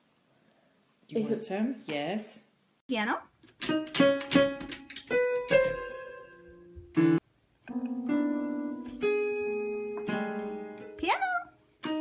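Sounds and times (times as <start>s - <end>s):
piano notes ringing: 3.7s - 12.0s.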